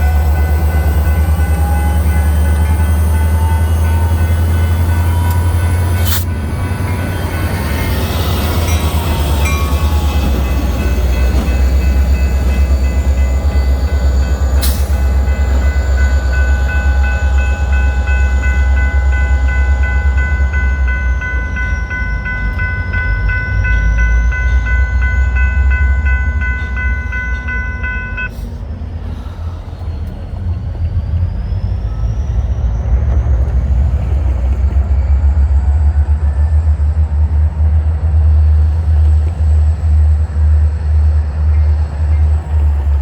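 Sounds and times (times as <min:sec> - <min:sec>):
bell ringing: 0:00.0 - 0:28.3
diesel locomotives rumbling: 0:00.0 - 0:43.0.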